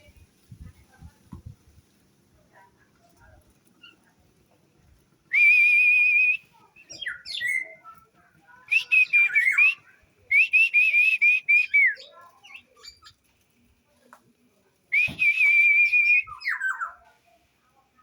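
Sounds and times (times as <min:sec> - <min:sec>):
songbird whistling song: 0:05.3 - 0:08.0, 0:08.6 - 0:13.2, 0:14.9 - 0:17.1.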